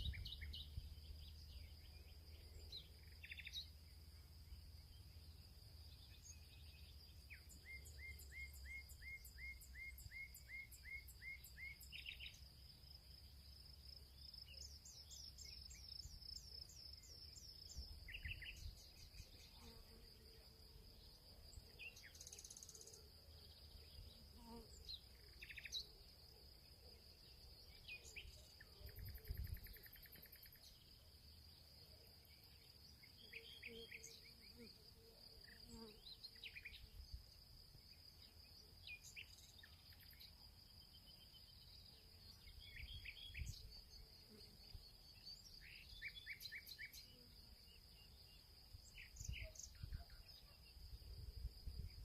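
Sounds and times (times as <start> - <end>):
high-pitched insect trill: 27.4 - 30.8.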